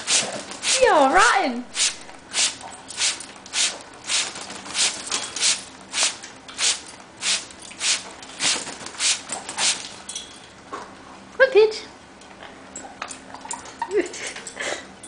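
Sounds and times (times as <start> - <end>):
spray bottle squirting: 0.0 - 0.9, 1.8 - 10.0.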